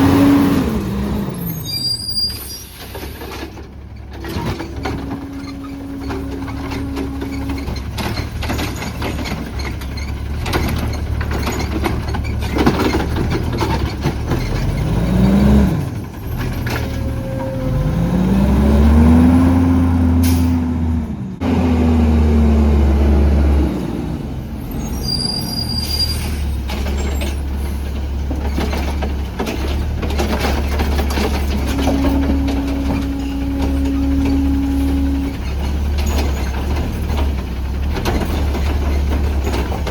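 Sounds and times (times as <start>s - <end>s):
garbage truck engine revving: 0.0s - 39.9s
air brakes hissing: 1.4s - 3.4s, 20.2s - 20.6s, 24.7s - 26.6s.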